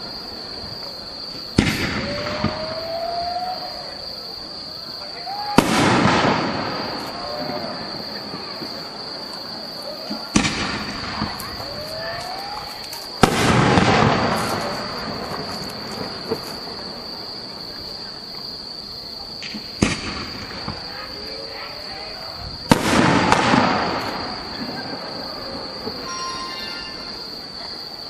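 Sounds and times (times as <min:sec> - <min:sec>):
spectators' voices: 0:00.0 - 0:28.0
firework shells bursting: 0:01.4 - 0:03.3, 0:05.3 - 0:09.4, 0:10.1 - 0:16.7, 0:19.4 - 0:20.8, 0:22.6 - 0:27.1.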